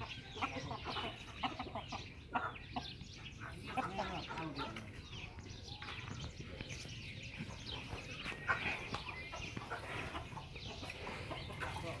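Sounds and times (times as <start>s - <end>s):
bird calls clucks and chirps: 0.0s - 12.0s.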